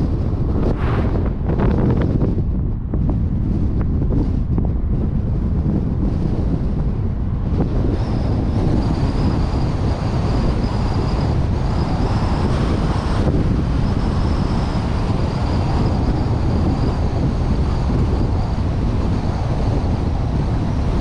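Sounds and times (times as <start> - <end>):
road noise: 0.0 - 21.0
wind buffeting camera: 0.0 - 21.0.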